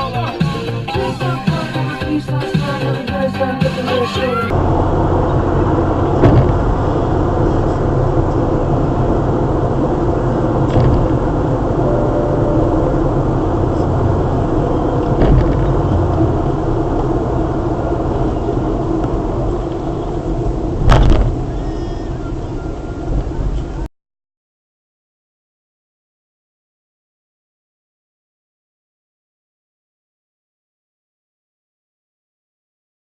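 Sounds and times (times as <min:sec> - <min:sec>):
car engine and road rumble: 0:00.0 - 0:23.9.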